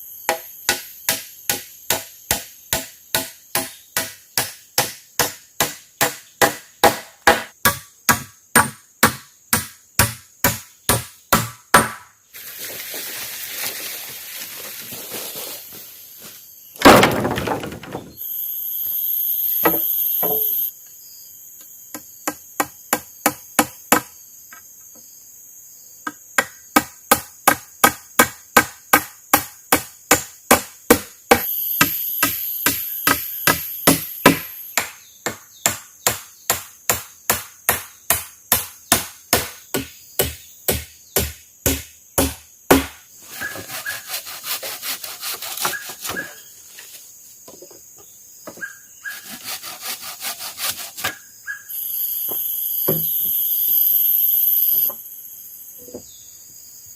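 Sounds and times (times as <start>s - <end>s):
high insect drone: 0.0s - 56.9s
wood being chopped: 0.3s - 12.1s, 16.8s - 18.2s, 26.4s - 43.0s
even hiss: 12.3s - 16.6s, 31.3s - 34.8s, 51.7s - 55.8s
loud crash: 16.8s - 18.2s.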